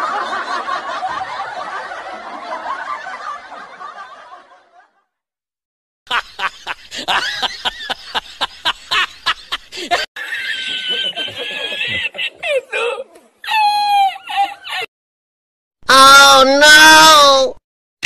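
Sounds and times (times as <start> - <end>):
murmur of laughter: 0.0 - 5.1, 6.1 - 13.3.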